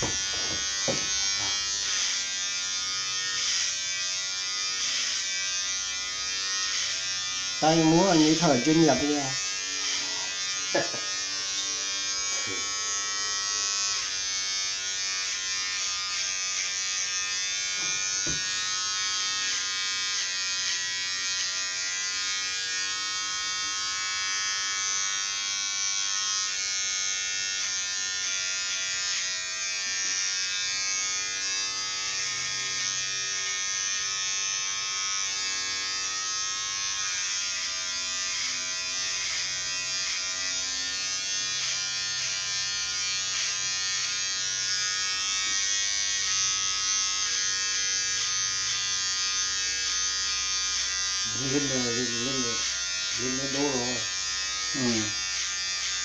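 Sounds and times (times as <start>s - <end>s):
electric hair clippers buzzing: 0.0s - 56.0s.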